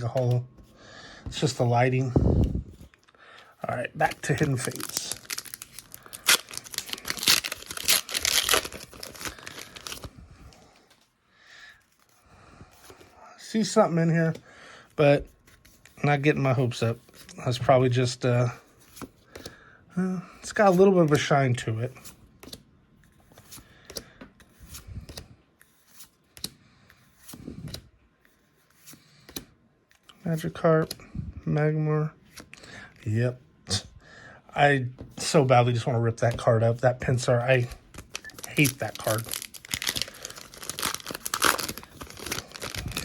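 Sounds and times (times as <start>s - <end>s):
cards clicking and rustling: 4.0s - 10.1s, 18.8s - 19.6s, 22.0s - 27.9s, 37.6s - 43.0s
wrapper tearing and crinkling: 4.0s - 10.1s, 37.9s - 43.0s.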